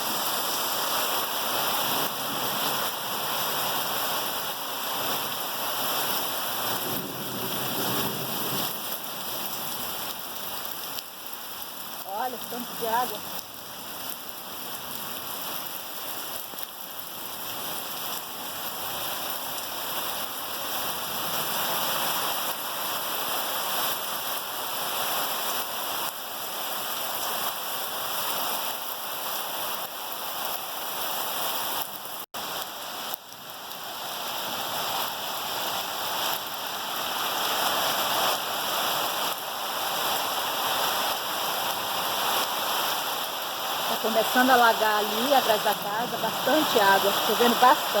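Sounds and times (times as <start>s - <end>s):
heavy rain falling: 0.0s - 48.0s.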